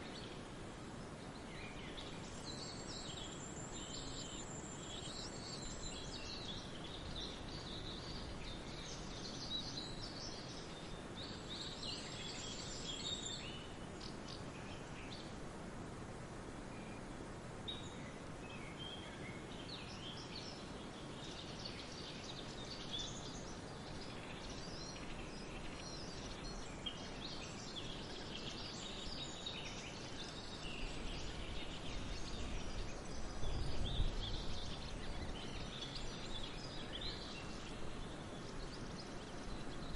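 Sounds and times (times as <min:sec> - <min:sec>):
outdoor background hiss: 0:00.0 - 0:39.9.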